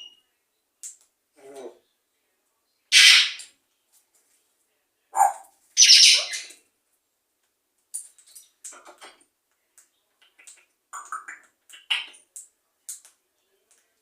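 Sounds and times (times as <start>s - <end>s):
parrot squawking: 2.9s - 3.4s, 5.2s - 6.5s.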